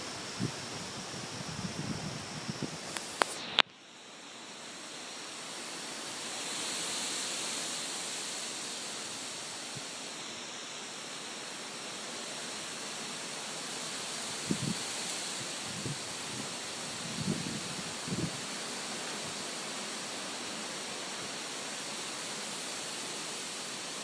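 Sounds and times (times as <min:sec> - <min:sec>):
strong storm wind rushing: 0:00.0 - 0:03.3, 0:14.3 - 0:18.5
sharp clicks: 0:02.9 - 0:03.7.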